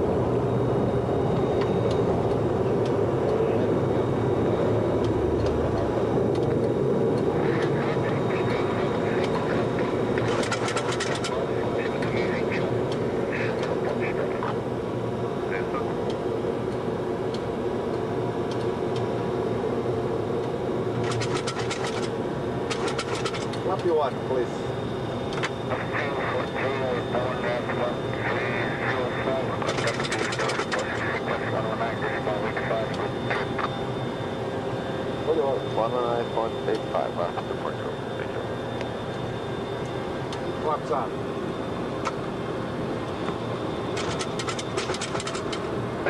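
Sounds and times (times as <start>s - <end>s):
jet engine rush in cockpit: 0.0s - 46.0s
run of clicks: 44.0s - 45.6s.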